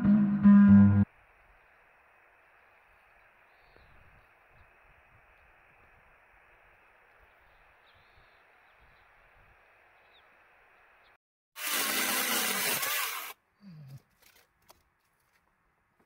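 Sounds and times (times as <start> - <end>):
faint outdoor ambience: 1.0 - 11.2
electric saw running: 11.6 - 13.4.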